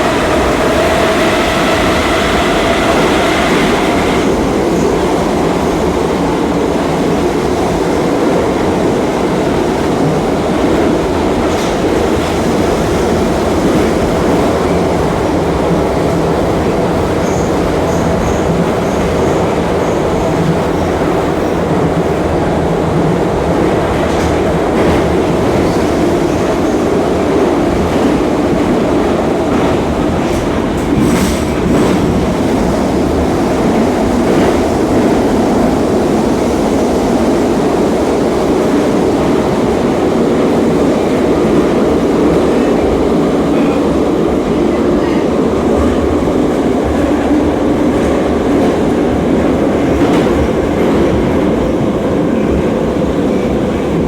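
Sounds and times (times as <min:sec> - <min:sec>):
train rumble and rail noise: 0:00.0 - 0:54.0.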